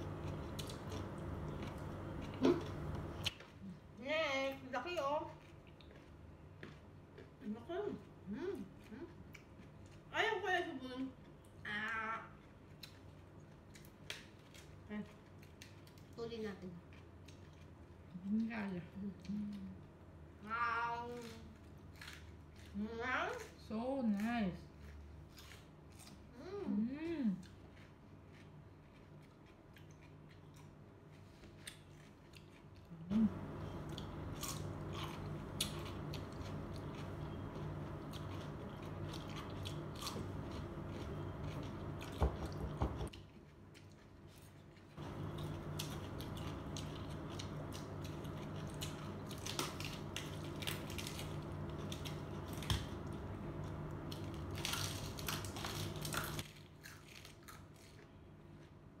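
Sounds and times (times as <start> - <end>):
crunching raw vegetables: 0.0 - 4.0, 27.4 - 59.0
steady low hum: 0.0 - 14.0, 26.4 - 56.7.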